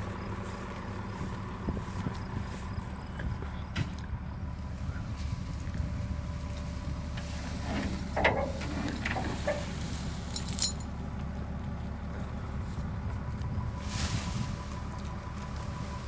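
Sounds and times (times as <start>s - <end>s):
diesel engine running: 0.0s - 16.0s
metal clinking and rattling: 5.5s - 10.9s.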